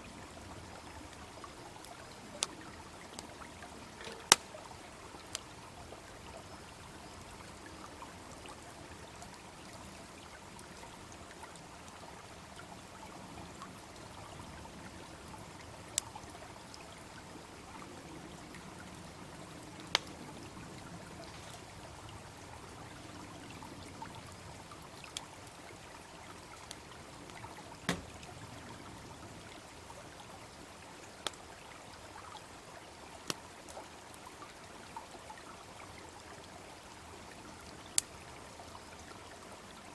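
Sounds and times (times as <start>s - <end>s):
small brook babbling: 0.0s - 39.9s
bonfire crackling: 0.4s - 7.7s, 8.9s - 16.5s, 17.1s - 30.3s, 33.2s - 33.8s, 37.9s - 38.2s
sharp pops from fire: 4.0s - 4.6s, 19.8s - 20.2s, 27.8s - 28.2s.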